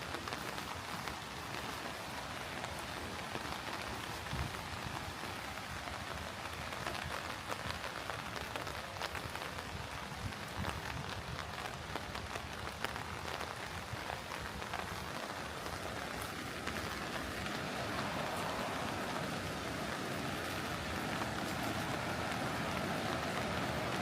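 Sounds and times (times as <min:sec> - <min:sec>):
rain falling on surfaces: 0:00.0 - 0:24.0
steady rushing sound: 0:16.5 - 0:24.0.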